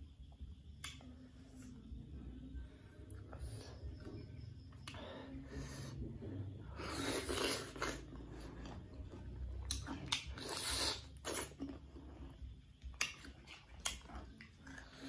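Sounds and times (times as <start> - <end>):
crunching bites and chewing: 7.0 - 15.0.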